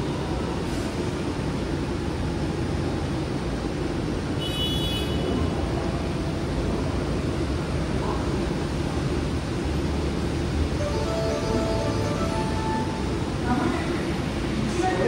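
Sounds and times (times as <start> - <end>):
electric train humming: 8.8 - 15.0
station noise: 10.2 - 15.0.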